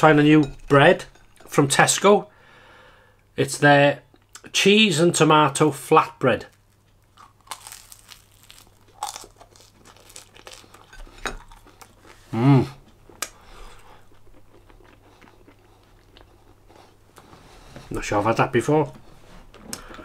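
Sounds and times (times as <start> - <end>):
crunchy chewing of flatbread: 6.5 - 17.7
person humming mmm: 12.3 - 12.8.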